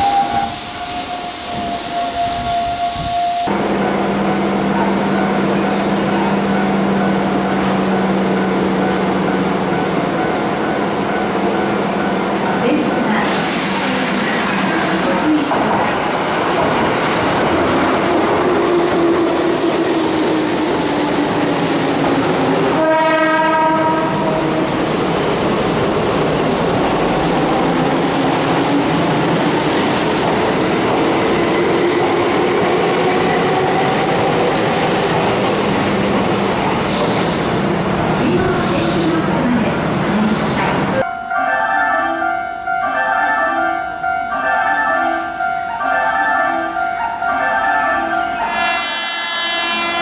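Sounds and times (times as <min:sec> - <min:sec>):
train horn blast: 0:22.7 - 0:24.6, 0:48.4 - 0:50.0.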